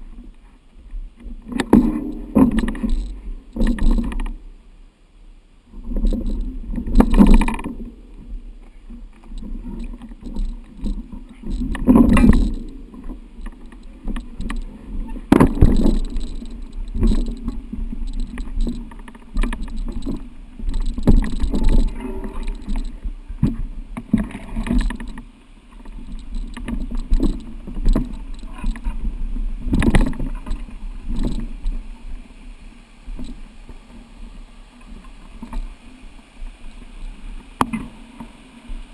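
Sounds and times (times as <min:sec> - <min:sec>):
mountain bike on rough trail: 0:00.0 - 0:04.9, 0:05.6 - 0:38.9
knocks and rattles: 0:01.5 - 0:04.3, 0:09.2 - 0:25.2, 0:25.8 - 0:29.0, 0:29.6 - 0:31.8.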